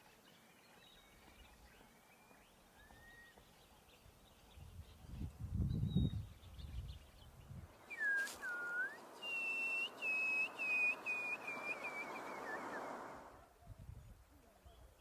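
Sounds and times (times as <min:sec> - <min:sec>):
shorebird whistling calls: 0:07.9 - 0:13.1.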